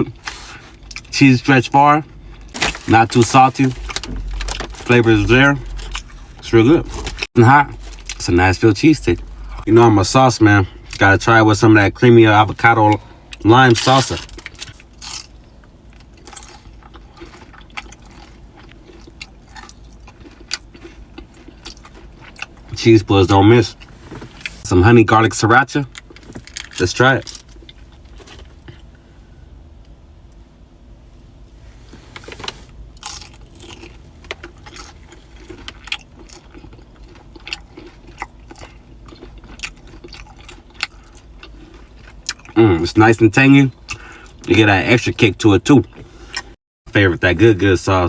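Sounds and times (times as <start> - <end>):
person crunching food: 2.2 - 8.3, 12.9 - 24.6, 25.9 - 28.9, 32.3 - 42.8
wet chewing and smacking: 14.2 - 22.8, 33.0 - 42.6.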